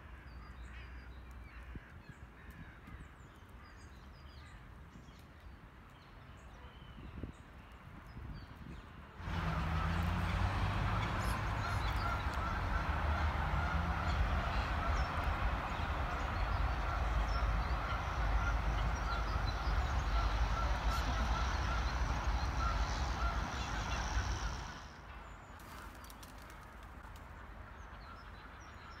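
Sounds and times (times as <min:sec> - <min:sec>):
birds calling: 0:09.2 - 0:25.0.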